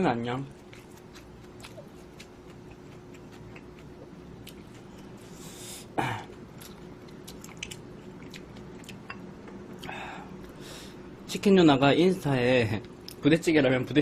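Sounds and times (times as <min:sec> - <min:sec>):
chewing and utensil clicks: 0:06.6 - 0:09.9.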